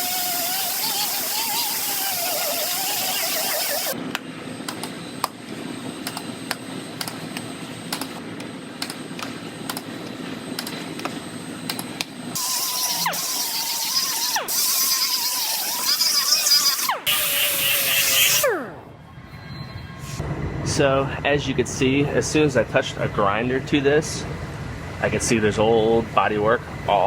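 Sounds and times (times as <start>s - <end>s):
grinder on sheet metal: 0.0s - 4.0s, 12.4s - 18.6s.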